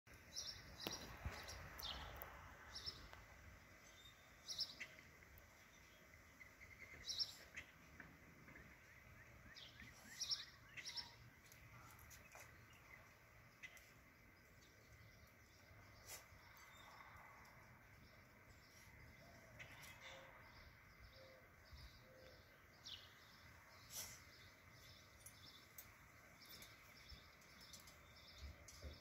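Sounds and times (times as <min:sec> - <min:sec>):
birds chirping faintly: 0:00.1 - 0:29.0.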